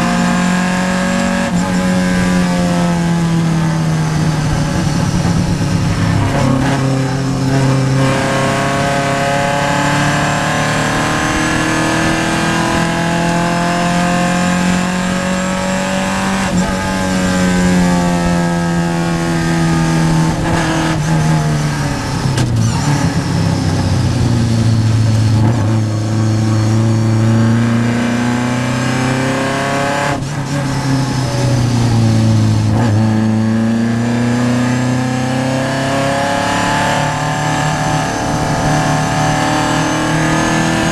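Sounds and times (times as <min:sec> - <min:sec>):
race car engine from inside: 0:00.0 - 0:40.9.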